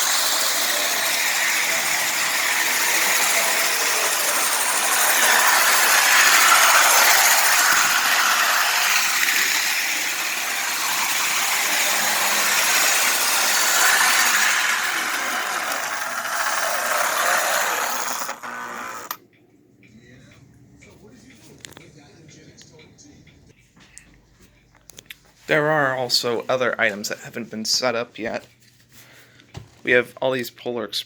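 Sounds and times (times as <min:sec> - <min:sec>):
toy train rattling on track: 0:00.0 - 0:19.2.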